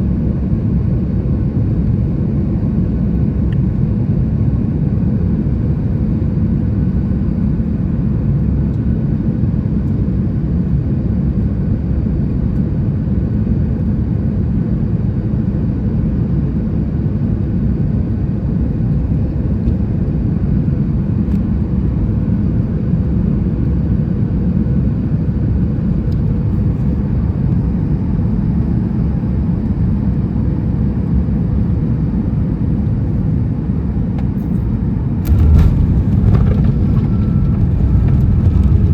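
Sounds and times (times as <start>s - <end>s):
airliner cabin engine rumble: 34.1s - 38.9s.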